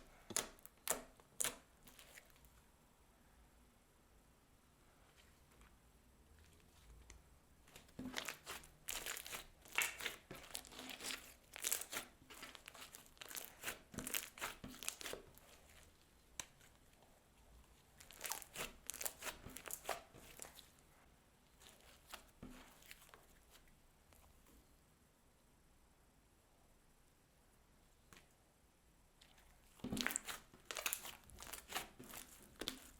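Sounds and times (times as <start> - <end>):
slime crackling and popping: 7.8 - 16.7, 18.0 - 20.6, 30.0 - 32.9.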